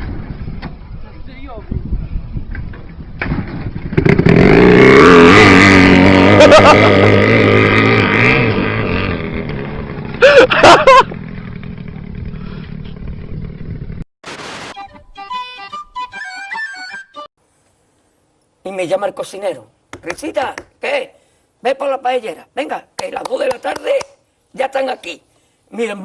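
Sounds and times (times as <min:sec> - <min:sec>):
motorcycle engine revving: 0:03.2 - 0:14.0.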